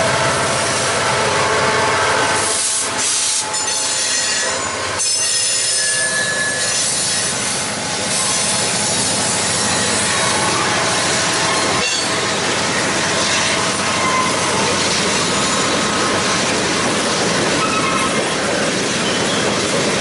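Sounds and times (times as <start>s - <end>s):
train wheels rolling on rails: 0.0s - 20.0s
wheels squealing: 3.5s - 10.7s, 17.6s - 18.2s.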